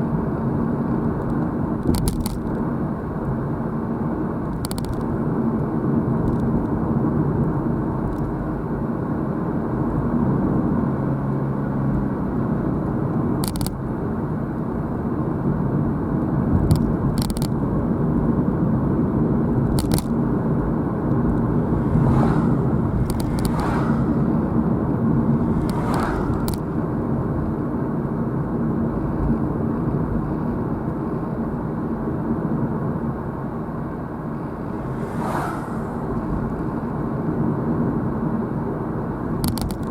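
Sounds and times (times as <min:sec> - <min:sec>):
road and engine rumble: 0:00.0 - 0:39.9
short whooshes: 0:21.6 - 0:26.7, 0:34.5 - 0:36.7
sharp clicks: 0:23.0 - 0:23.7, 0:25.6 - 0:26.6.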